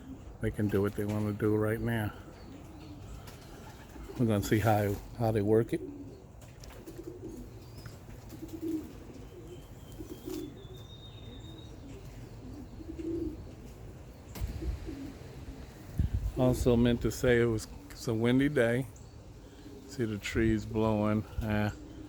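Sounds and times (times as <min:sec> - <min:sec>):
pigeons cooing softly: 0:00.0 - 0:22.0
wind rumbling on microphone: 0:14.3 - 0:17.8.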